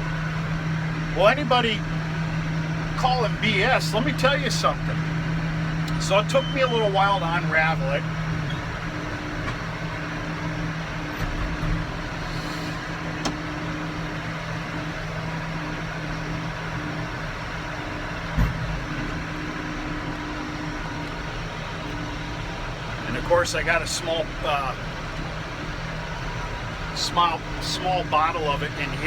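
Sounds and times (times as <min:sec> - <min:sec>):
tractor engine humming: 0:00.0 - 0:29.0
machinery noise: 0:01.0 - 0:29.0
short thump: 0:18.4 - 0:18.8.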